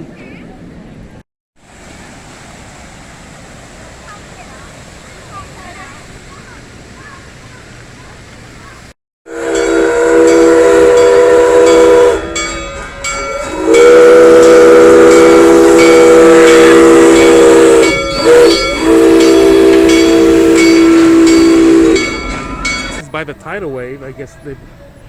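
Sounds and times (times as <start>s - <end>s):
train whistle chord: 9.3s - 23.0s.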